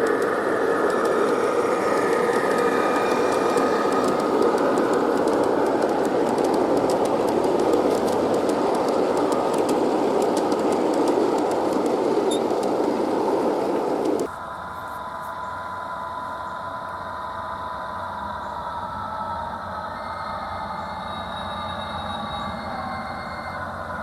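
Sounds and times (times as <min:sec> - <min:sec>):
wheels clicking over rails: 0:00.0 - 0:14.3
model train rumbling: 0:00.0 - 0:14.7.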